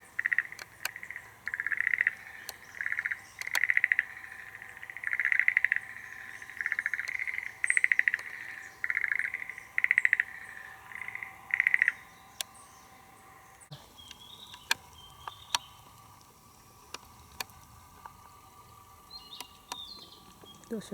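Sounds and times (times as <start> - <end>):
frogs calling with rattling trills: 0.0 - 20.9
camcorder zoom lever clicks: 13.9 - 20.6.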